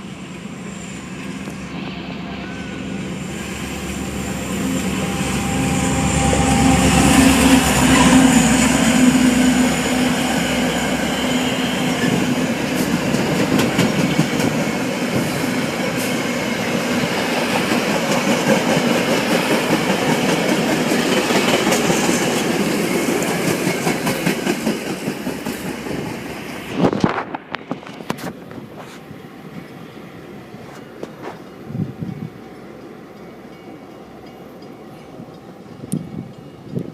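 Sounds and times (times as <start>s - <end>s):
train wheels clacking over rails: 4.5s - 29.0s.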